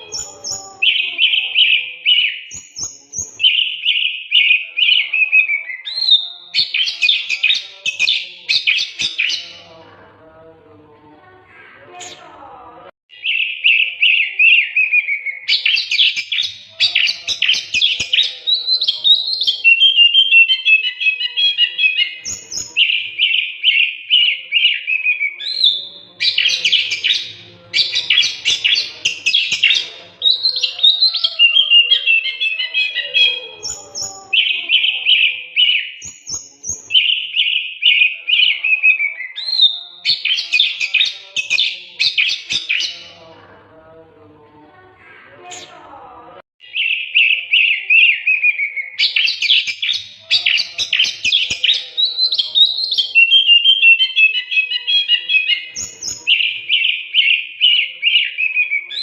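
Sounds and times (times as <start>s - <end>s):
songbird singing: 0.0s - 9.8s, 13.1s - 43.4s, 46.6s - 59.0s.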